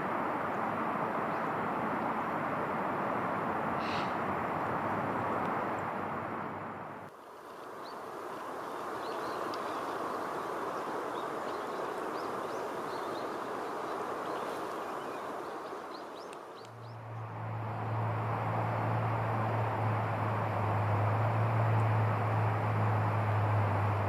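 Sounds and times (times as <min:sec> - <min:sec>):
small birds chirping: 0:03.8 - 0:04.2, 0:09.0 - 0:17.3
rushing background noise: 0:09.8 - 0:24.0
low hum: 0:16.7 - 0:24.0.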